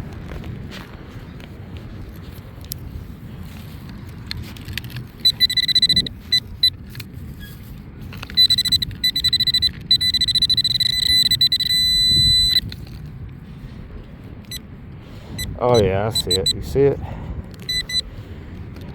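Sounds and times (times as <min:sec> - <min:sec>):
wind rumble: 0:00.0 - 0:18.9
pinpointer beeping: 0:05.2 - 0:06.8, 0:08.2 - 0:12.8, 0:15.4 - 0:16.8, 0:17.6 - 0:18.0.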